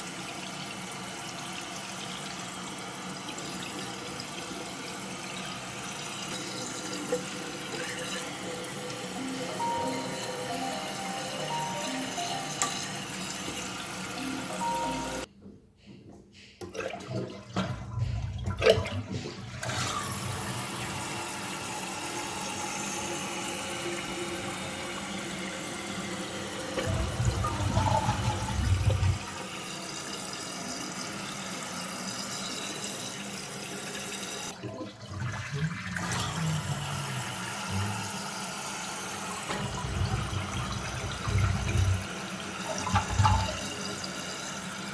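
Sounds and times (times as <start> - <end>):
toilet flushing: 0.0 - 15.3, 16.6 - 44.9
toilet tank refilling: 0.0 - 15.3, 16.6 - 44.9.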